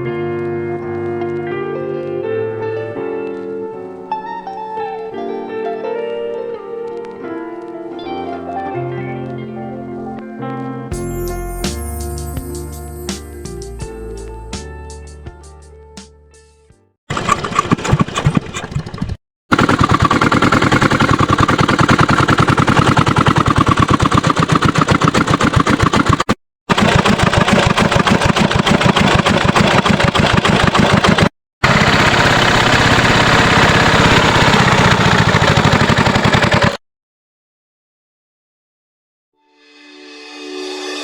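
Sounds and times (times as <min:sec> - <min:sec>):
diesel engine running: 0:17.1 - 0:36.8.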